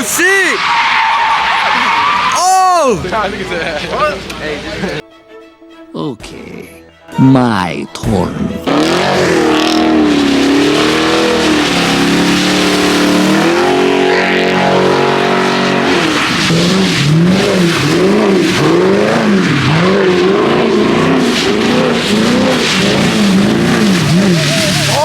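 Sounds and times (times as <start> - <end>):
car engine revving: 8.4 - 25.0.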